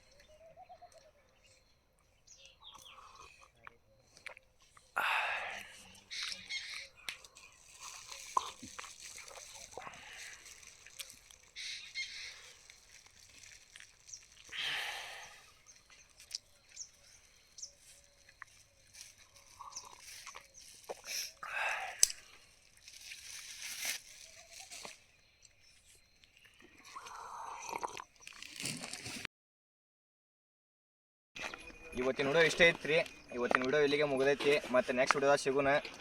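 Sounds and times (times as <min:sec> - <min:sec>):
faint bird chirps: 0:00.0 - 0:28.2.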